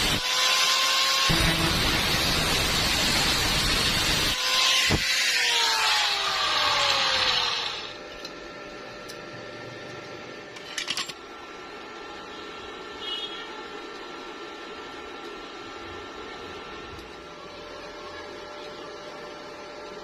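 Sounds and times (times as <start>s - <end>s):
power tool grinding metal: 0.0s - 8.0s.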